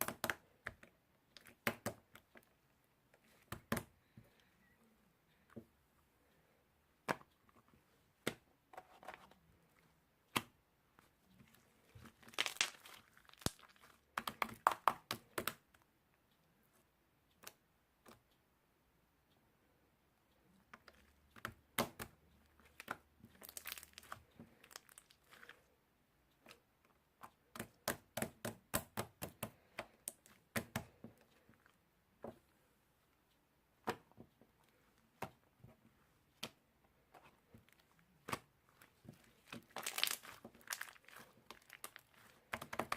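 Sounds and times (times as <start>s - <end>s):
crinkling handling noise: 11.0s - 14.2s, 22.6s - 25.7s, 37.0s - 42.9s.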